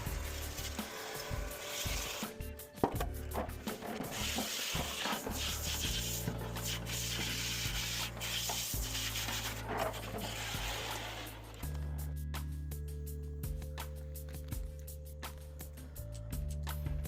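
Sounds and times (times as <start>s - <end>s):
rough rubbing and scraping: 0.0s - 12.0s
background music: 0.0s - 17.0s.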